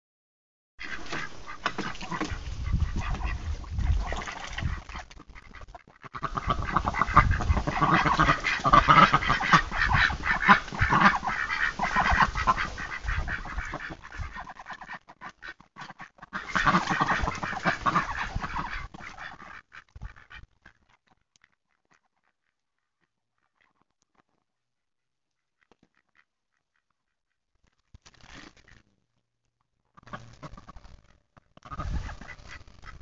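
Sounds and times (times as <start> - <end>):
poultry flock calling: 4.0 - 19.6.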